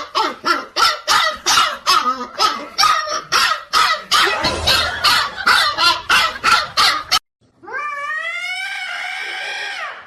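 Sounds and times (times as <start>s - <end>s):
dog barking rapidly: 0.0s - 7.2s.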